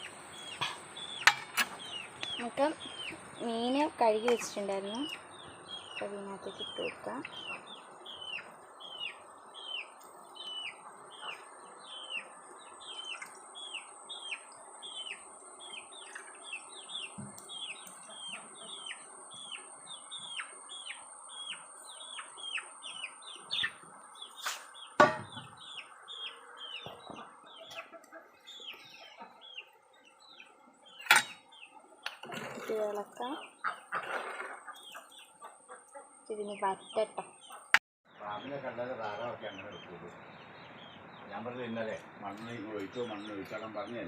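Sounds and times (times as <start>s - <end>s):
bird chirping: 0.0s - 44.0s
sharp knocks: 25.0s - 25.6s.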